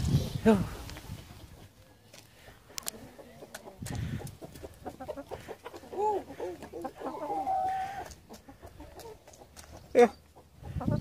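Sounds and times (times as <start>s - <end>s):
hen clucking: 2.7s - 11.0s.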